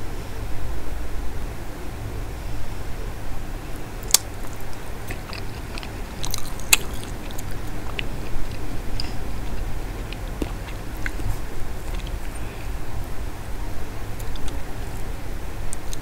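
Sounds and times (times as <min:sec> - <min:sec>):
steady low hum: 0:00.0 - 0:16.0
chewing and mouth smacks: 0:04.0 - 0:12.7, 0:14.2 - 0:14.6.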